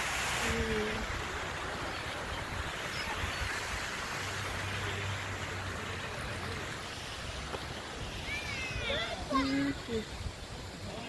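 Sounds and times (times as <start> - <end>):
water fountain splashing: 0.0 - 11.0.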